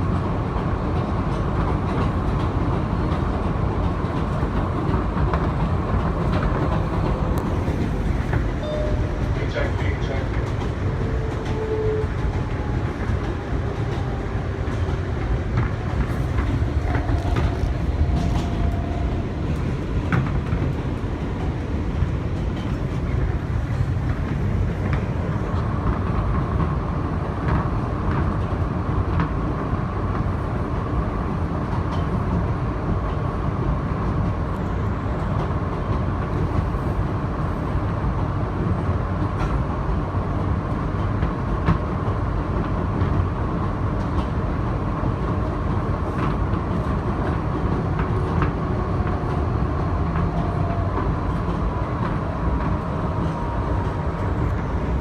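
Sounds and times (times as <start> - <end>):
subway car rumble: 0.0 - 55.0
steady high tone: 8.6 - 9.3.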